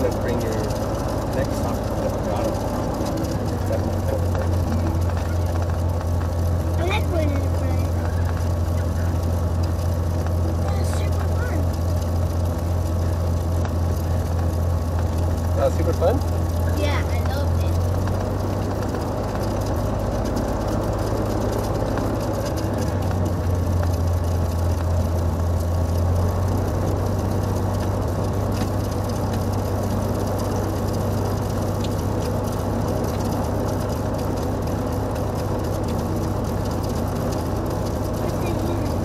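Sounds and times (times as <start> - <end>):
airplane engine and propeller droning: 0.0 - 39.0.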